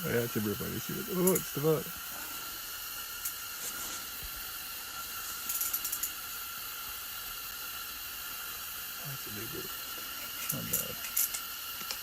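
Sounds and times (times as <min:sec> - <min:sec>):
portable heater hissing: 0:00.0 - 0:12.0.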